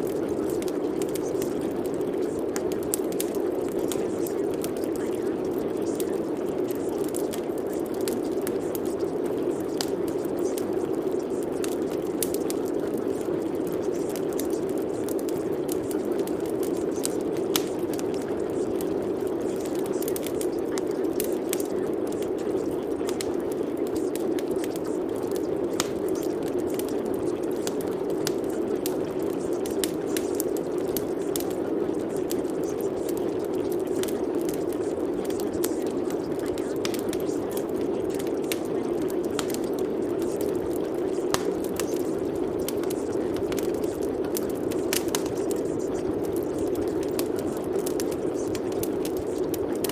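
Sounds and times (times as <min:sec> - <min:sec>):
steady rain: 0:00.0 - 0:49.9
raindrops clicking on a surface: 0:19.4 - 0:49.9.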